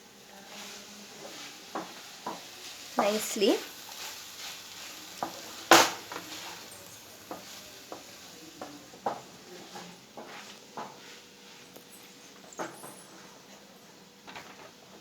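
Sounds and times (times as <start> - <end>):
faint sizzle: 0.0 - 15.0
utensil scraping a pan: 9.0 - 11.7.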